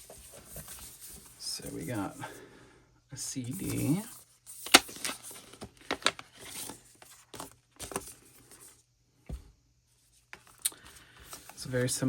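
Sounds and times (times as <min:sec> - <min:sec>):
album packaging crinkling: 0:03.6 - 0:08.7, 0:10.3 - 0:12.0.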